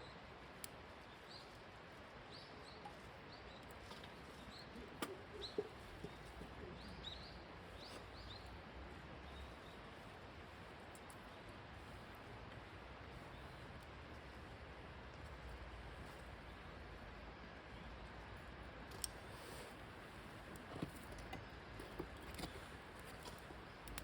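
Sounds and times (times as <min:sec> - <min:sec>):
small birds chirping: 0:00.0 - 0:12.1, 0:13.1 - 0:14.6.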